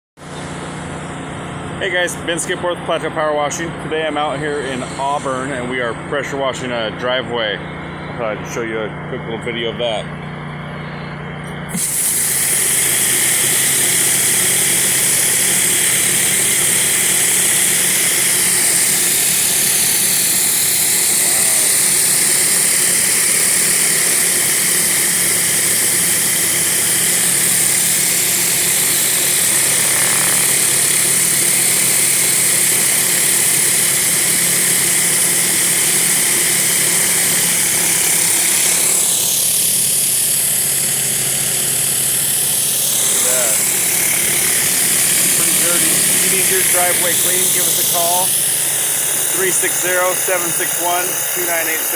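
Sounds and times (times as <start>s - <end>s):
pressure washer engine running: 0.2s - 51.9s
high-pressure water spray hissing: 4.2s - 5.7s, 11.6s - 51.9s.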